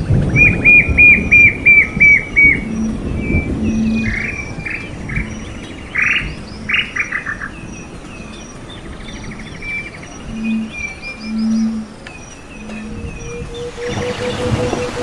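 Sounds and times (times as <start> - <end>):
birds chirping and whistling: 0.0 - 15.0
insects: 0.0 - 15.0.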